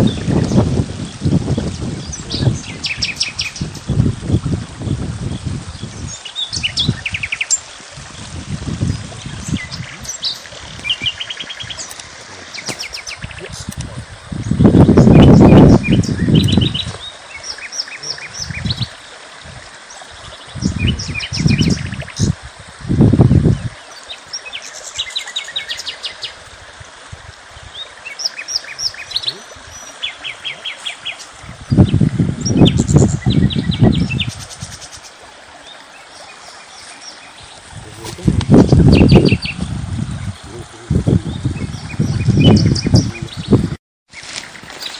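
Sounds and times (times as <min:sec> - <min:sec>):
small birds chirping: 0:00.0 - 0:04.0, 0:04.8 - 0:19.2, 0:27.5 - 0:44.9.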